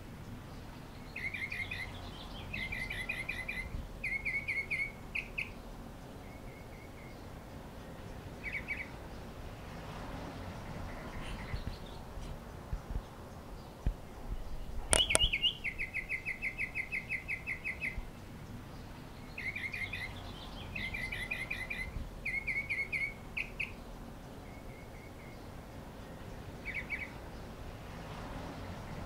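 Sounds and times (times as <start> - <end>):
small bird chirping: 0.3 - 9.4, 10.9 - 27.6
sharp clicks: 14.9 - 15.5.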